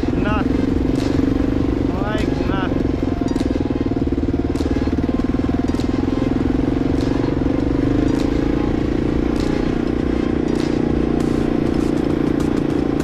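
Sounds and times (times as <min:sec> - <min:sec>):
motorcycle engine running: 0:00.0 - 0:13.0
sharp click: 0:09.4 - 0:09.8.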